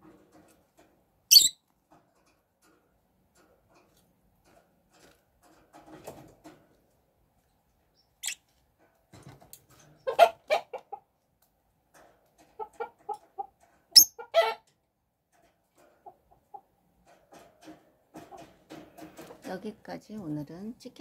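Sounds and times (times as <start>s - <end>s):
chickens clucking: 9.6s - 11.3s, 12.0s - 14.8s, 15.5s - 19.6s.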